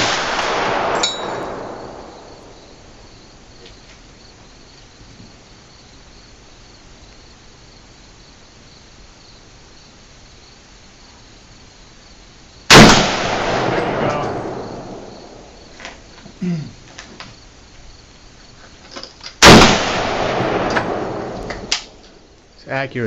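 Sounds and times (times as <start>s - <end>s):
gunshot: 0.0s - 2.6s, 12.7s - 15.5s, 19.4s - 22.0s
insects chirring: 0.0s - 23.0s.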